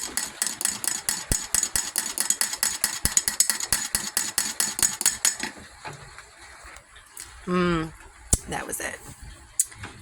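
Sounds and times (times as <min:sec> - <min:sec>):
metal spoon clinking in glass: 0:00.0 - 0:05.5.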